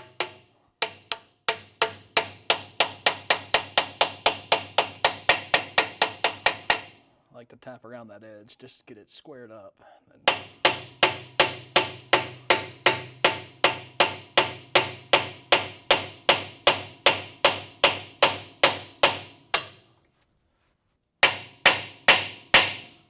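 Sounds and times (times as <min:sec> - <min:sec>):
hammer striking metal: 0:00.0 - 0:07.0, 0:10.3 - 0:19.9, 0:21.2 - 0:23.0.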